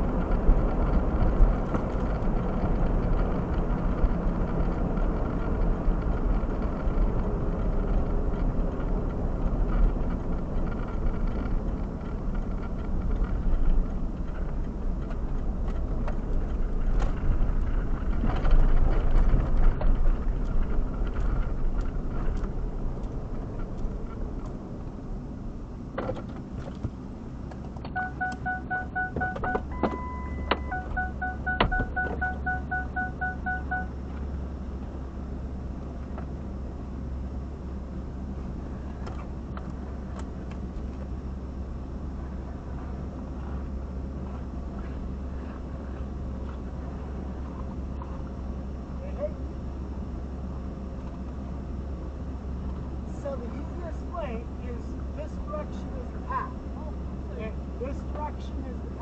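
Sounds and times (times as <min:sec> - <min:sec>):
car engine rumble inside: 0:00.0 - 0:59.0
short electronic beeps: 0:27.9 - 0:34.0.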